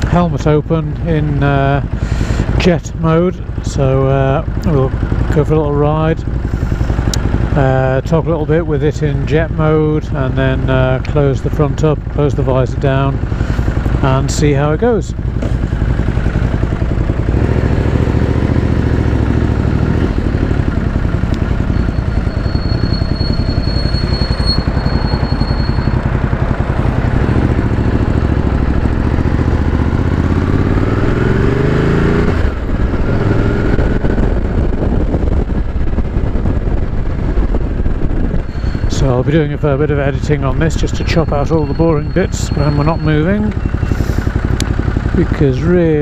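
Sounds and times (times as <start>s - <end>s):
motorcycle engine accelerating: 0.0s - 46.0s
wind rushing on microphone: 32.4s - 39.2s.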